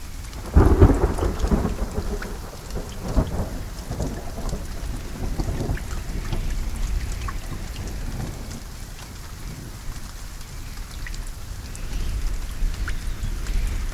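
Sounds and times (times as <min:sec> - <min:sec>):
steady rain: 0:00.0 - 0:13.9
rolling thunder: 0:00.4 - 0:08.8.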